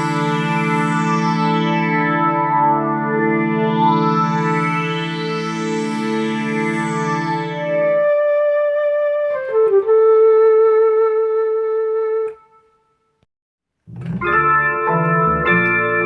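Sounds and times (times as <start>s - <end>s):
keyboard melody: 0.0s - 13.0s, 13.9s - 16.0s
keyboard chord: 13.9s - 16.0s.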